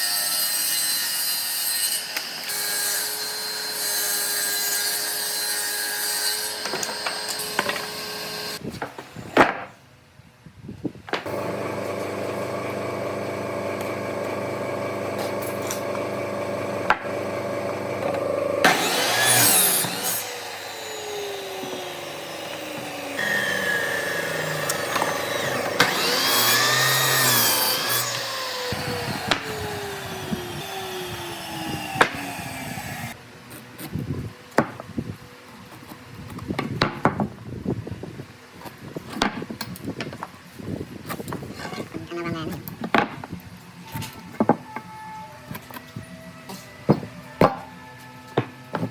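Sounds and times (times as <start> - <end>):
power tool motor running: 11.2 - 33.2
motors winding down: 11.3 - 33.2.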